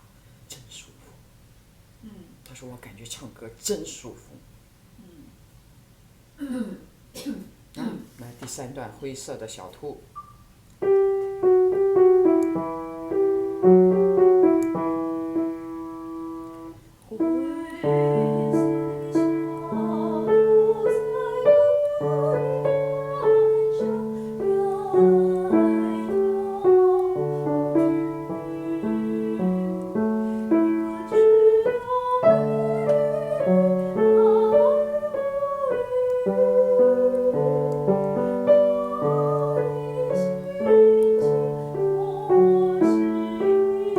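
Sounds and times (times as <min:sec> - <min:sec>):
piano accompaniment: 0:10.2 - 0:43.9
person singing: 0:17.1 - 0:43.9.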